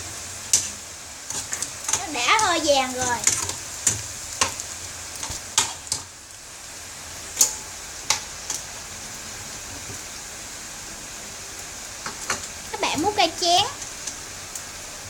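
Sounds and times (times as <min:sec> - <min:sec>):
oil spitting crackles: 0:00.0 - 0:06.5
meat sizzling in hot oil: 0:00.0 - 0:15.0.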